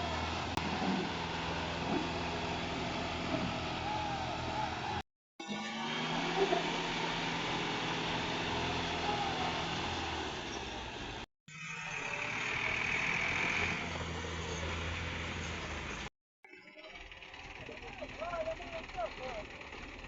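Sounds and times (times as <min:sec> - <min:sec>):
tractor engine running: 0:00.0 - 0:05.0, 0:16.9 - 0:20.0.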